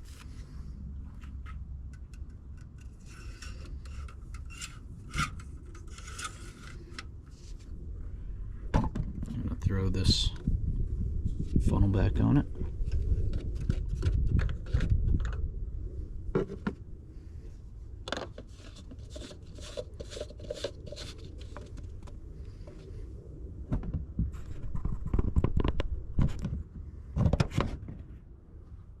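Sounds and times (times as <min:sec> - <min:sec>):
plastic clicks and scrapes: 0:01.2 - 0:07.6, 0:12.9 - 0:15.4, 0:18.1 - 0:22.8.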